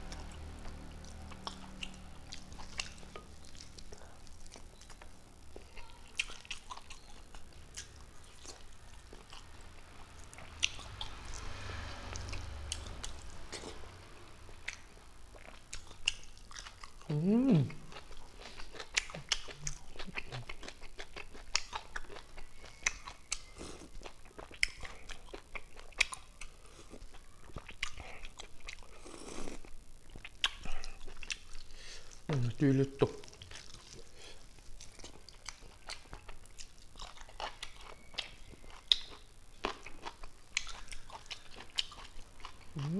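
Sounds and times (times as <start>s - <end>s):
wet chewing and mouth clicks: 0.1s - 11.5s, 14.5s - 32.4s, 33.0s - 42.9s
person humming mm: 17.1s - 17.9s.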